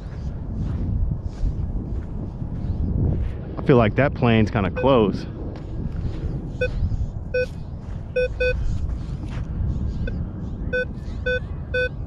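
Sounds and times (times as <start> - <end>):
plane rumble overhead: 0.0 - 12.0
metal detector beeps: 7.3 - 7.5, 8.2 - 8.6, 10.7 - 12.0.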